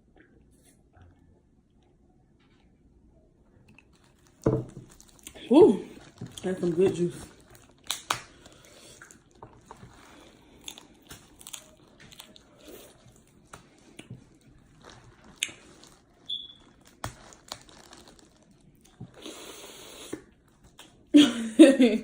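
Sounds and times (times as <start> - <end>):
person chewing and biting: 3.7 - 6.5, 7.3 - 21.0
sharp clicks and crunches: 13.5 - 19.0.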